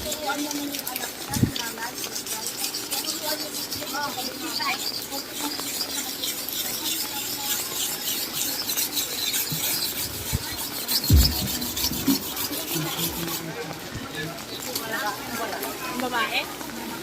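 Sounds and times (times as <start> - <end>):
low thumps: 11.0 - 13.4
rain pattering: 11.1 - 17.0.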